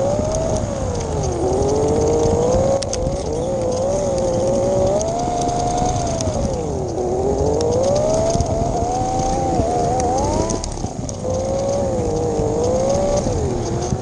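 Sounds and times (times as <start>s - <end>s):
steady rumble with small ticks: 0.0s - 14.0s.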